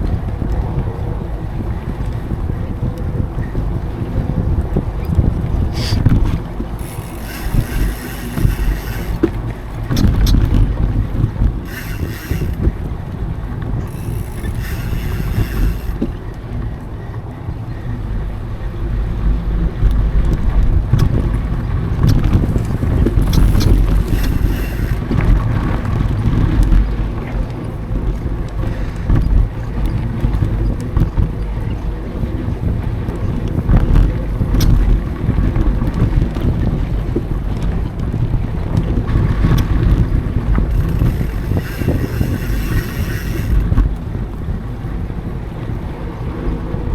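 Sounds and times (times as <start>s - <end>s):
wind buffeting microphone: 0.0s - 46.9s
bike rolling on dirt trail: 4.6s - 16.6s, 20.8s - 30.6s, 35.4s - 45.0s
bike clicks and rattles: 5.5s - 16.5s, 21.0s - 31.5s, 39.3s - 44.2s.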